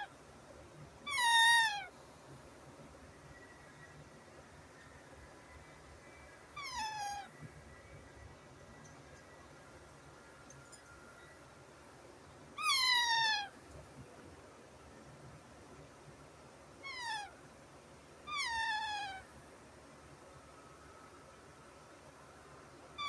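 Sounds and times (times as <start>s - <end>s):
baby parrot calling: 1.1s - 1.9s, 6.6s - 7.3s, 12.6s - 13.5s, 16.8s - 17.3s, 18.3s - 19.2s.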